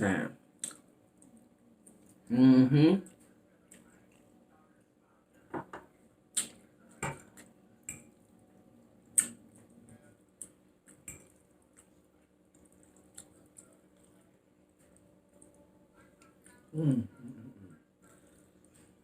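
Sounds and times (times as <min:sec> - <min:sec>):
wet mouth clicks and smacks: 0:00.6 - 0:01.3, 0:06.3 - 0:06.6, 0:09.2 - 0:09.4.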